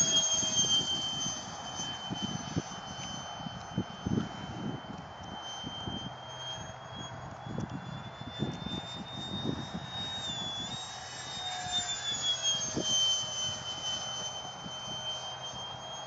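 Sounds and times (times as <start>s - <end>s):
wind buffeting microphone: 0.0s - 11.0s
electric ducted fan whine: 0.0s - 16.0s.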